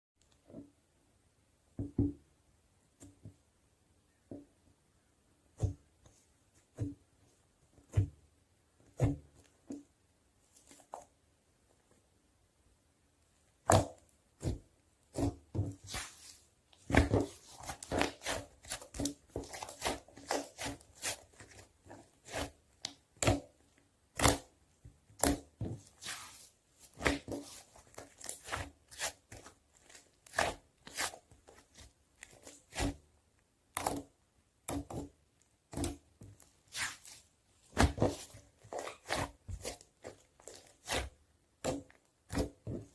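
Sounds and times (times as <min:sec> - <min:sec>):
slime being squished by hand: 0:13.6 - 0:24.5, 0:25.1 - 0:33.0, 0:33.7 - 0:42.9.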